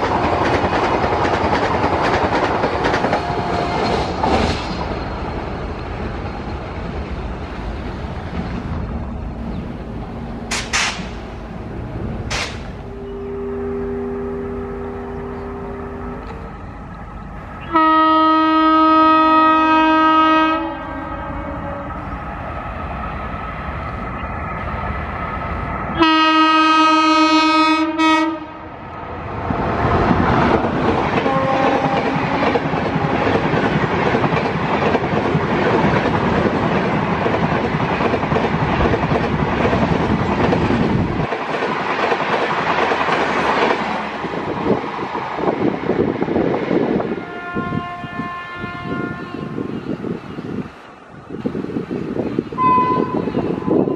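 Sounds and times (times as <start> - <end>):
train wheels clattering: 0.0 - 7.1, 10.5 - 11.4, 12.2 - 12.8, 30.0 - 45.7
faint locomotive horn: 3.1 - 4.1, 12.8 - 16.7, 17.6 - 22.2, 26.0 - 28.7, 31.2 - 33.3, 47.1 - 49.8, 52.6 - 53.9
locomotive horn blast: 3.2 - 3.9, 12.8 - 16.6, 17.6 - 22.1, 26.0 - 28.7, 31.2 - 32.6, 47.2 - 49.7, 52.6 - 53.9.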